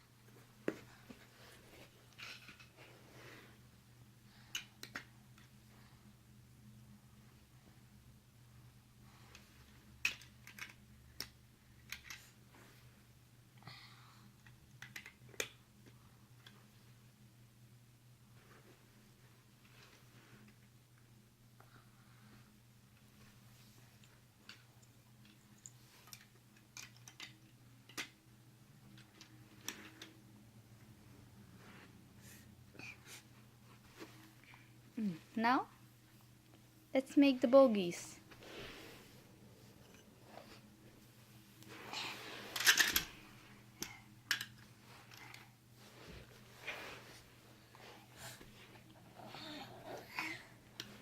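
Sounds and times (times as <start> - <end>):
faint steady hum: 0.0 - 51.0
toy pieces clicking and clattering: 10.0 - 11.3, 11.9 - 12.2, 42.6 - 43.1, 44.3 - 44.6
small clicks of toy pieces: 10.0 - 12.3, 14.4 - 15.6, 26.0 - 28.1, 42.6 - 43.1, 43.8 - 45.4.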